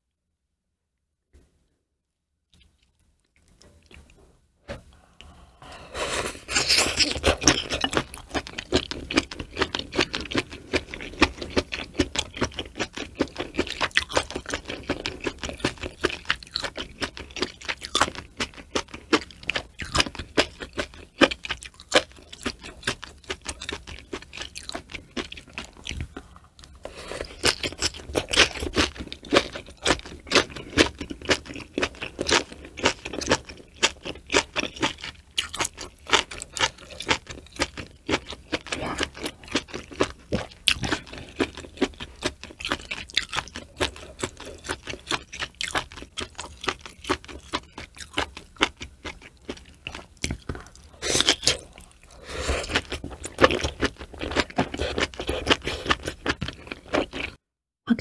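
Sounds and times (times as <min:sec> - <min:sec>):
chewing and crunching food: 0:02.5 - 0:57.4.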